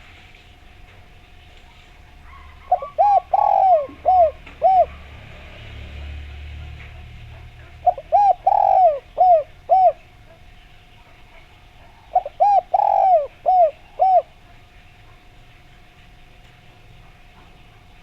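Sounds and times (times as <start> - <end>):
dove cooing: 0.0 - 15.4.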